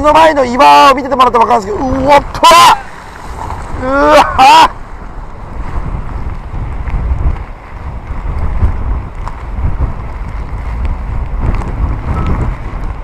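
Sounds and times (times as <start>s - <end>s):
strong wind on microphone: 0.0s - 13.0s
surf breaking on rocks: 1.2s - 7.5s.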